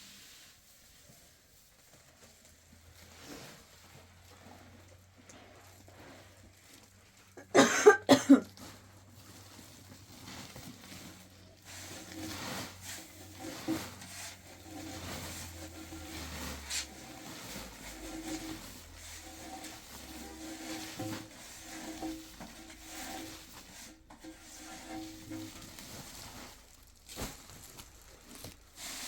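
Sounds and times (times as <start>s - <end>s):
person coughing: 7.4s - 8.6s.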